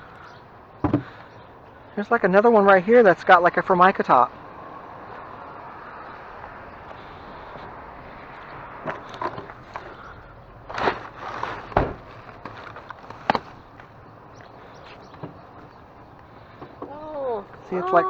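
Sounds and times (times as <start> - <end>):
outdoor background noise: 0.0 - 18.0
wooden table knocking and scraping: 0.8 - 1.1.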